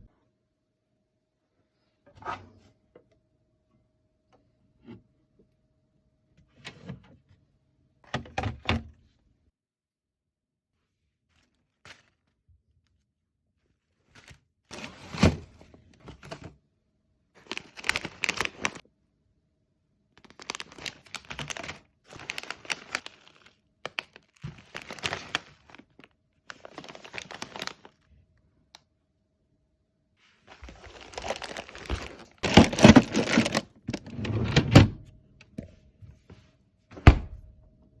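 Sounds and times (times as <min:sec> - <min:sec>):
plastic packaging crinkling: 0:17.4 - 0:18.8, 0:20.2 - 0:28.0, 0:30.5 - 0:34.1.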